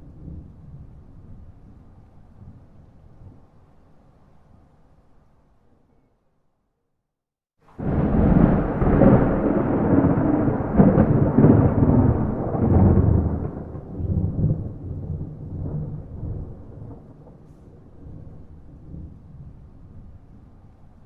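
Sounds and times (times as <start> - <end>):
rolling thunder rumble: 0.0 - 3.5, 7.7 - 21.0
sharp thunder crack: 7.8 - 19.2.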